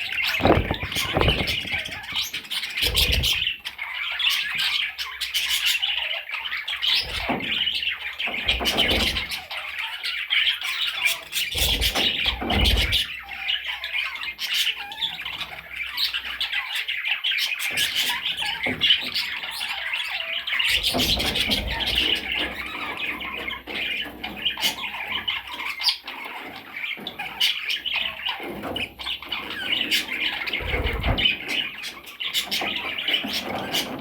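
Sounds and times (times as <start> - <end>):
low thumps: 0.3 - 2.2.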